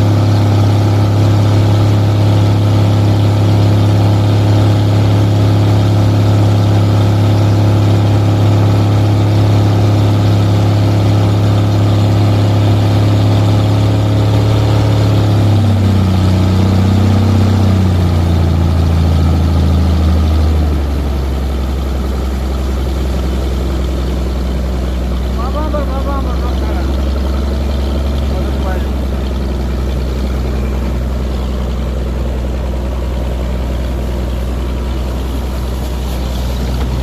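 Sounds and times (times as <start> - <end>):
engine humming steadily: 0.0 - 37.0.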